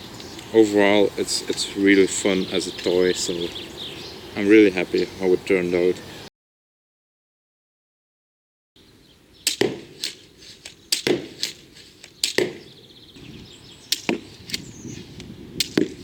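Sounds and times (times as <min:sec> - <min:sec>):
crossbow snaps and knocks: 0:13.9 - 0:16.0.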